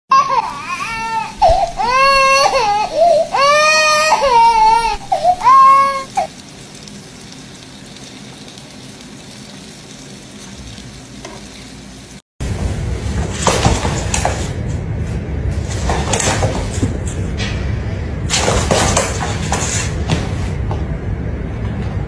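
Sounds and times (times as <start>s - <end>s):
frying pan sizzling: 0.2s - 12.8s.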